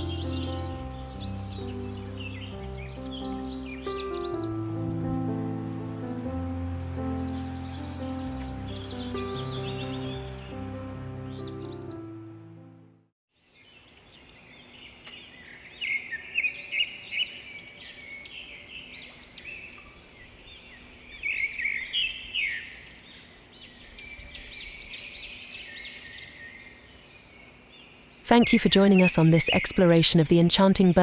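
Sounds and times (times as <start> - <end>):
birds chirping and calling: 0.0 - 12.6.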